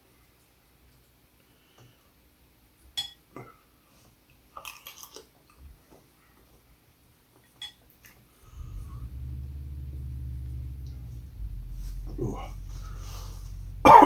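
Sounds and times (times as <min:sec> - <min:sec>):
quiet eating of soup: 0:04.5 - 0:05.7.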